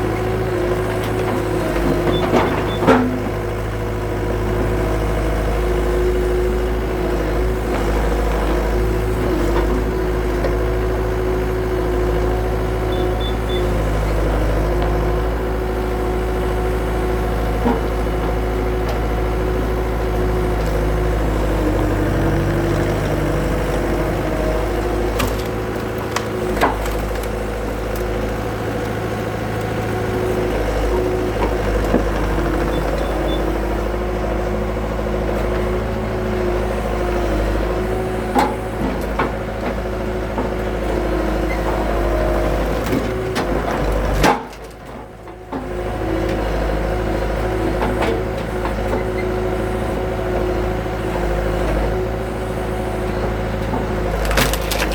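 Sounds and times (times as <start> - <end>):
skid steer engine running: 0.0 - 54.9
sharp knocks and cracks: 25.0 - 29.8, 53.6 - 54.9.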